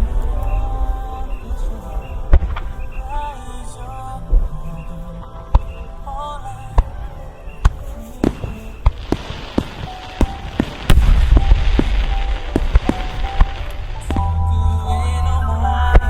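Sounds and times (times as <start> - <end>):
steady hiss: 0.0 - 14.5
music: 0.0 - 16.0
firework shells bursting: 7.7 - 14.4
heavy low boom: 9.0 - 16.0.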